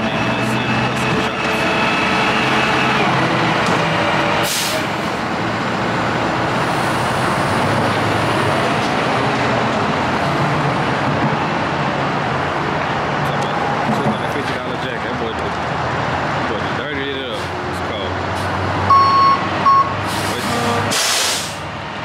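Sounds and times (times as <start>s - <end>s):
heavy truck engine running: 0.0s - 22.0s
air brake hiss: 4.4s - 4.9s, 20.1s - 21.6s.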